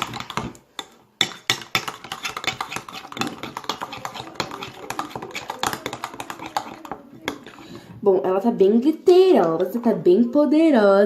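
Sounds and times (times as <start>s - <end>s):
utensil scraping and clicking in pot: 0.0s - 8.0s.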